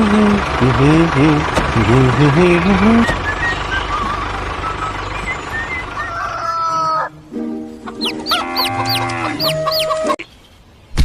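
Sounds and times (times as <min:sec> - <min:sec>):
pitched animal calls: 0:05.9 - 0:07.2, 0:07.8 - 0:10.2
high chirps: 0:07.9 - 0:10.2.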